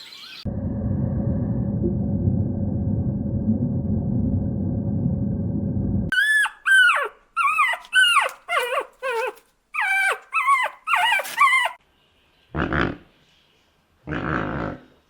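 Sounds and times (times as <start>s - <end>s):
loud low noisy rumble: 0.5s - 6.1s.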